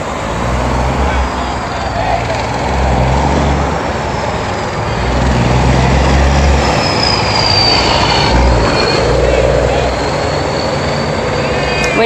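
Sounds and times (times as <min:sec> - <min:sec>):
vehicle noise: 0:00.0 - 0:12.0
high whine sliding down: 0:03.5 - 0:12.0.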